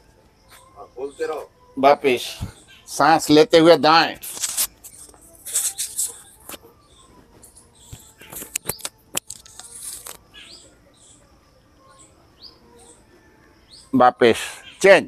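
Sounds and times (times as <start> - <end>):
birds chirping: 0.0 - 15.0
sharp clicks: 7.9 - 10.2.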